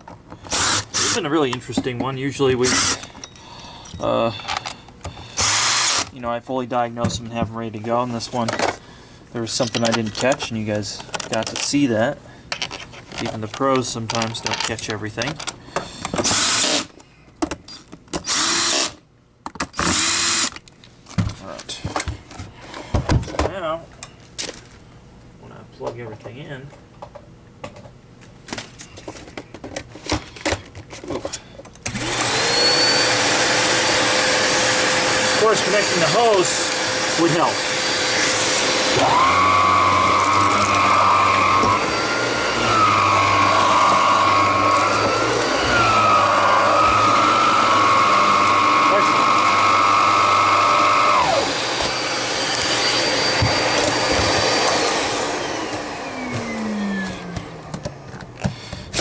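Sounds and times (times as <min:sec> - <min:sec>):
handling clicks and knocks: 0:09.6 - 0:11.8, 0:12.5 - 0:16.3
vacuum cleaner motor whine: 0:31.9 - 0:59.0.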